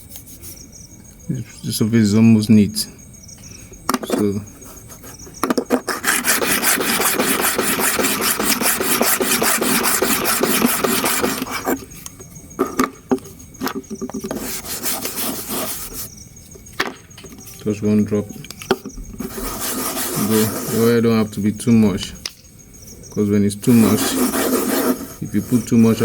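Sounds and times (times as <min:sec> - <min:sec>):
rubbing on sharpening stone: 0:04.0 - 0:11.9, 0:13.9 - 0:16.1, 0:19.2 - 0:21.0, 0:23.6 - 0:26.0.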